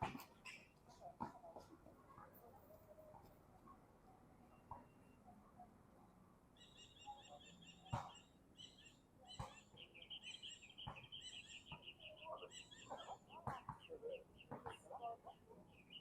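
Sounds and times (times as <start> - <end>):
bird chirping rapidly: 6.6 - 15.0, 15.7 - 16.0.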